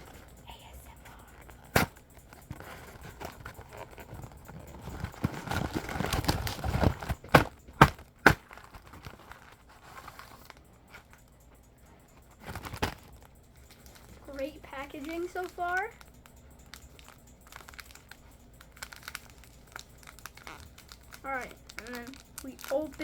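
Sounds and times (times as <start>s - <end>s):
packaging rustling and crinkling: 1.5s - 11.2s, 12.4s - 14.2s, 16.7s - 23.0s.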